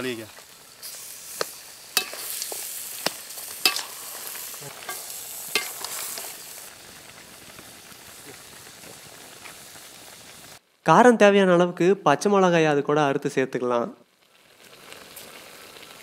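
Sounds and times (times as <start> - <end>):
meat and tomatoes sizzling in a pan: 0.0 - 10.8, 14.1 - 16.0
metal ladle scraping a pan: 0.8 - 6.5.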